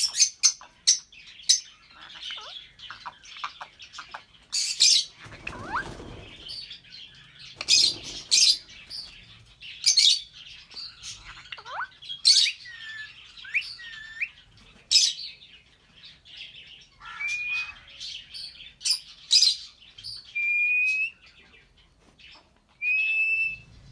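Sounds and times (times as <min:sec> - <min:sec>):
lovebirds chirping shrilly: 0:00.0 - 0:15.5, 0:16.1 - 0:21.4.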